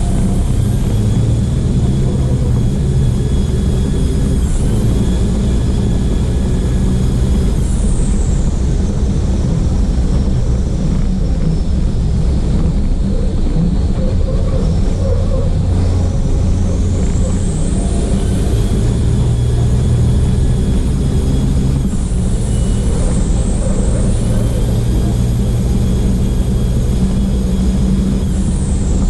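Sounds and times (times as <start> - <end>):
diesel truck engine running hard: 0.0 - 29.0
thin high whistle: 22.2 - 24.8.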